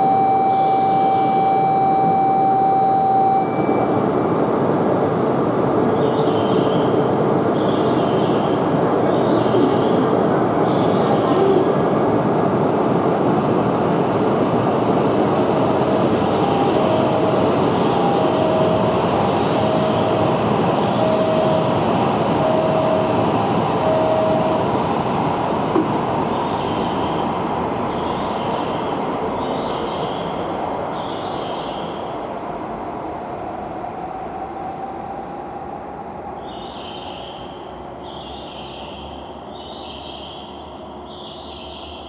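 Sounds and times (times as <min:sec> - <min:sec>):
short electronic beeps: 0:00.0 - 0:04.1, 0:15.4 - 0:19.0, 0:21.0 - 0:21.8, 0:22.4 - 0:24.7
train rushing past: 0:08.4 - 0:38.0.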